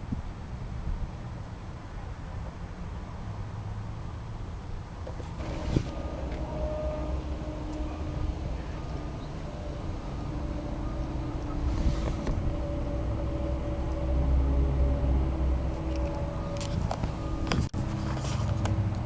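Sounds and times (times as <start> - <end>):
car engine rumbling: 5.0 - 19.0.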